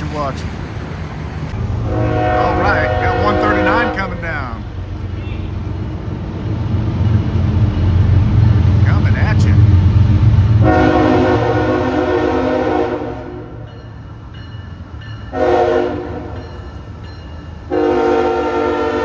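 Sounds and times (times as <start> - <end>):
low train rumble: 0.0 - 19.0
locomotive air horn blasts: 1.6 - 5.7, 10.6 - 13.6, 15.3 - 16.4, 17.7 - 19.0.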